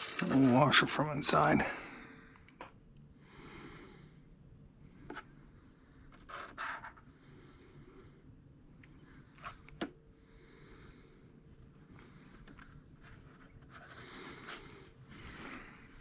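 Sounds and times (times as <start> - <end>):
soft breaths through nose: 7.1 - 16.0.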